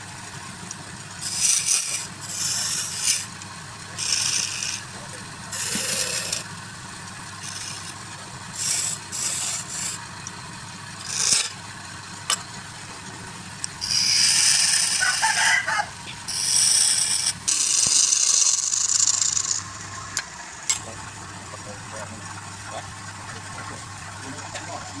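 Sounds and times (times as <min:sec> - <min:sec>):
low motor hum: 0:00.0 - 0:25.0
tool cutting wood on lathe: 0:01.1 - 0:06.5, 0:07.3 - 0:10.1, 0:11.0 - 0:11.6, 0:13.6 - 0:20.9.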